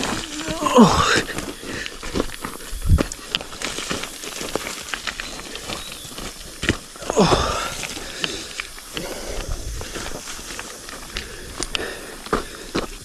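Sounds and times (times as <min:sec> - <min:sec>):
breathy voice sound: 0:00.0 - 0:02.0, 0:07.0 - 0:10.2, 0:11.1 - 0:13.0
footsteps on leaf litter and twigs: 0:00.0 - 0:13.0.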